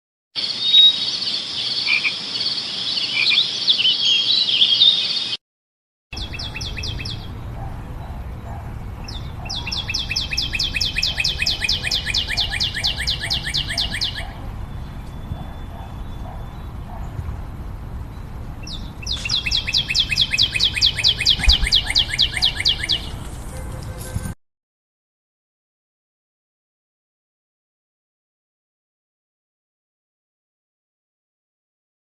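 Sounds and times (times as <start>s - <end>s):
birds chirping: 0.4s - 5.4s, 6.2s - 24.3s
fast sharp repeated bird notes: 9.1s - 14.4s, 18.6s - 23.2s.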